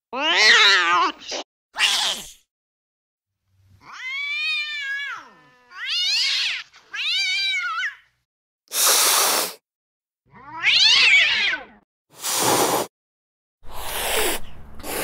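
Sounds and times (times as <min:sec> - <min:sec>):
cat yowling: 0:00.1 - 0:02.4, 0:03.8 - 0:08.1, 0:10.3 - 0:11.8
cat hissing: 0:01.3 - 0:02.4, 0:08.7 - 0:09.6, 0:12.2 - 0:12.9, 0:13.6 - 0:15.0.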